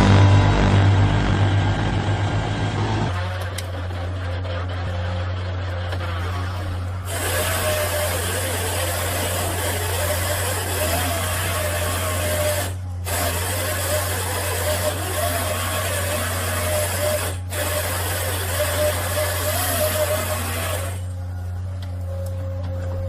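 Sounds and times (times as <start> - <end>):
machinery low hum: 0.0 - 13.2, 20.2 - 23.0
mechanical rushing noise: 0.0 - 15.0.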